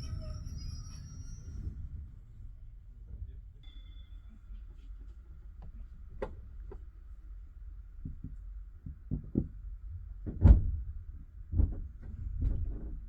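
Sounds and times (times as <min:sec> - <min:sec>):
train carriage rumble: 0:00.0 - 0:13.0.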